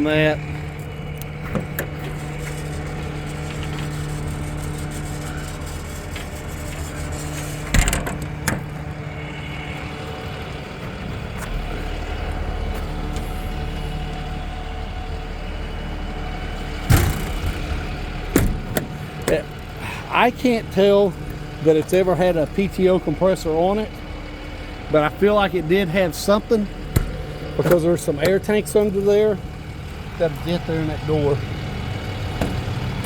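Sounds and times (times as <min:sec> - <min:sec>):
engine idling: 0:00.0 - 0:33.0
sharp knocks or bangs: 0:16.9 - 0:18.9.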